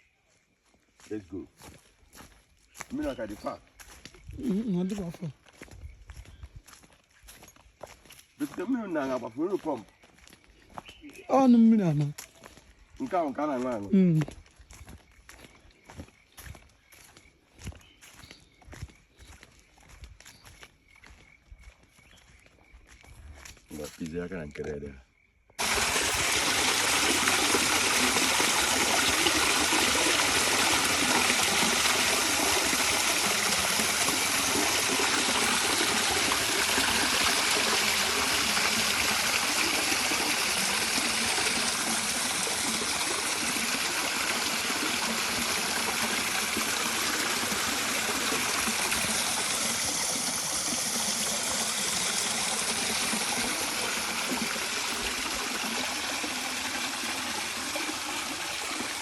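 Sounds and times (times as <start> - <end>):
river water flowing: 25.6 - 59.0.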